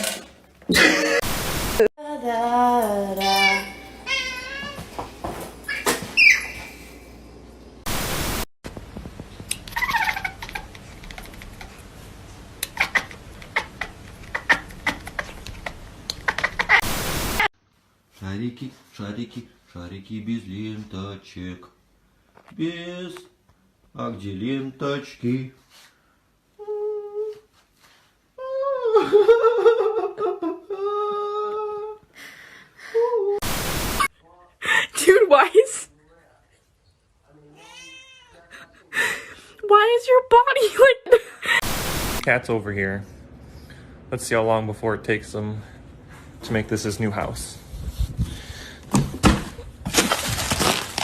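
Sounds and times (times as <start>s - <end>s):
cat meowing: 3.2s - 4.9s, 37.5s - 38.5s.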